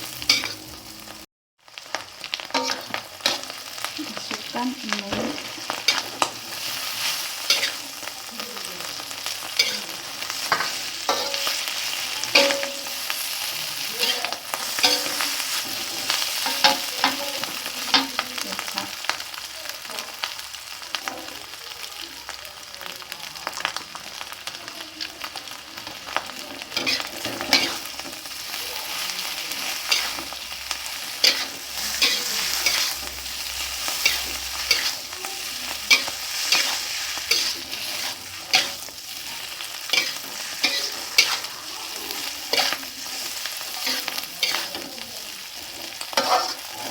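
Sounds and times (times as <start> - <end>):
food sizzling in a pan: 0.0 - 46.9
spatula scraping a pan: 2.3 - 3.9, 26.6 - 46.9.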